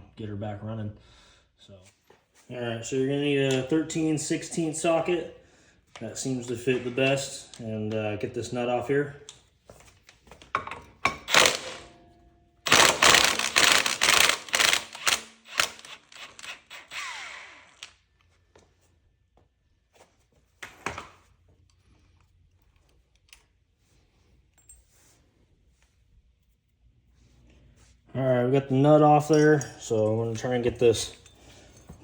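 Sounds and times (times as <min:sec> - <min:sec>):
impact wrench hammering: 0:10.6 - 0:16.9.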